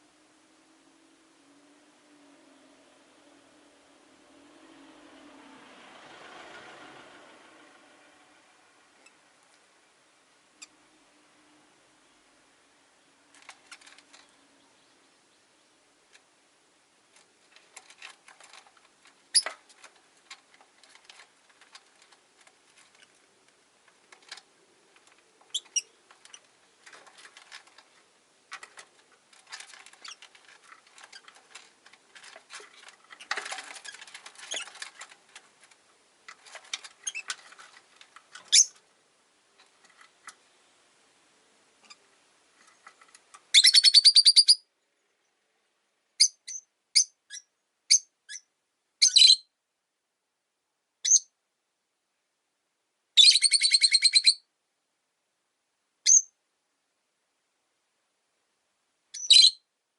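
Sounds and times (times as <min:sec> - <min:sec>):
lovebirds chattering and clicking: 0:24.1 - 0:27.9, 0:59.2 - 0:59.5
shrill bird calls and chirps: 0:38.5 - 0:38.8, 0:43.5 - 0:45.1, 0:46.2 - 0:49.5, 0:51.0 - 0:51.3, 0:53.2 - 0:54.5, 0:56.1 - 0:56.4, 0:59.2 - 0:59.7.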